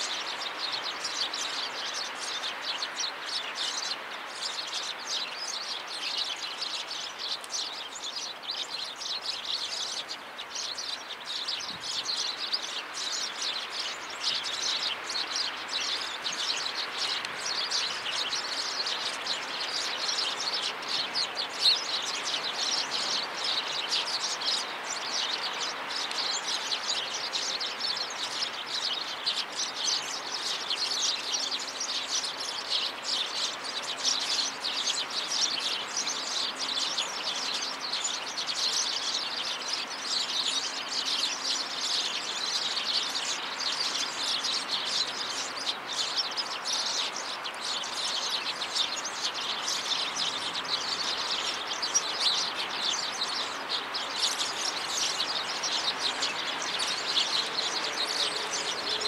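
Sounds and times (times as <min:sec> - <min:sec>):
birds chirping in chorus: 0:00.0 - 0:59.0.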